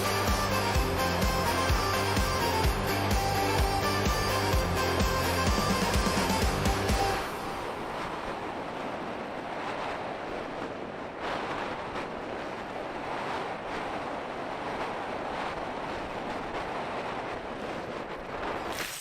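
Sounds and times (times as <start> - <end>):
strong wind on microphone: 0.0 - 19.0.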